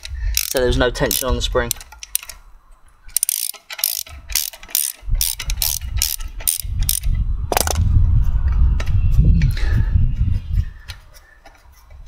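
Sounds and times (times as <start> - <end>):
socket ratchet clicking: 0.0 - 2.4, 3.1 - 7.8
low rumble: 6.7 - 10.7.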